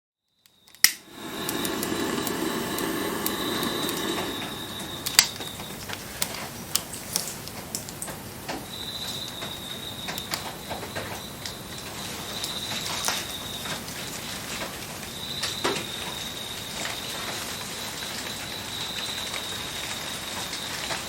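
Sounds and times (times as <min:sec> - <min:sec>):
bonfire crackling and popping: 0:00.8 - 0:08.2
thin high whine: 0:01.0 - 0:06.0
hiss with hum: 0:01.0 - 0:06.4.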